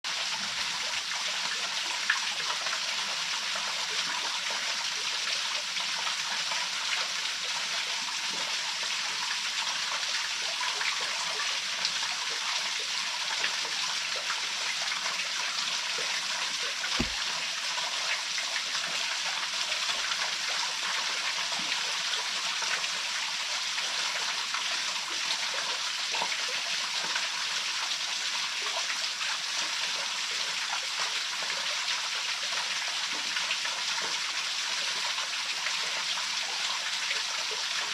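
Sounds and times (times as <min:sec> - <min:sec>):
brief low thump: 0:17.0 - 0:17.3.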